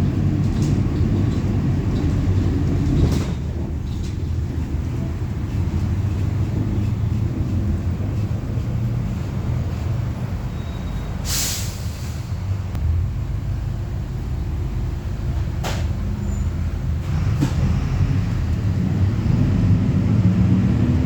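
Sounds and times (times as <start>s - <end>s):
bus diesel and road rumble: 0.0s - 21.0s
air brake hiss: 10.6s - 12.5s.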